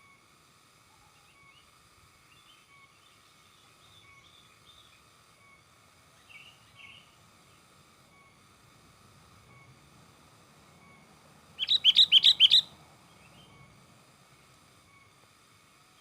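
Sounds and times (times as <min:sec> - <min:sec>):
bird chirpy calls: 0:10.8 - 0:13.8.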